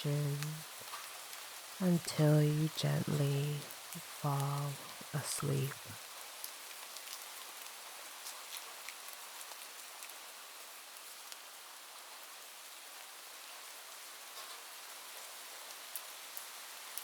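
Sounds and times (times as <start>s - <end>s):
light rain falling: 0.0s - 17.0s
raindrop ticks: 0.1s - 10.2s.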